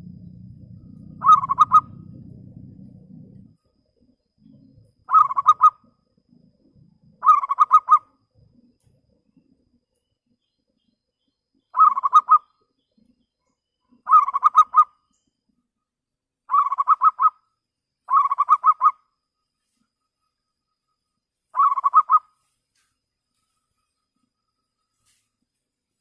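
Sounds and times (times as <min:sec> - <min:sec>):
dove cooing: 0:00.0 - 0:03.5, 0:04.4 - 0:05.9, 0:07.1 - 0:08.1, 0:11.8 - 0:12.4, 0:14.0 - 0:14.9, 0:16.5 - 0:17.4, 0:18.1 - 0:18.9, 0:21.6 - 0:22.3.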